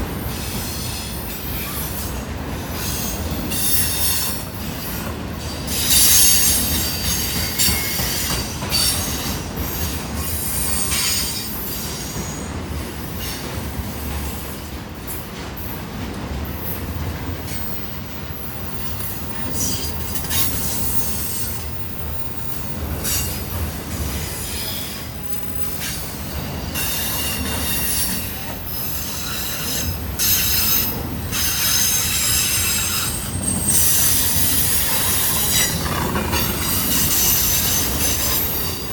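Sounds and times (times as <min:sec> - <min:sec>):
train rumbling on rails: 0:00.0 - 0:38.9.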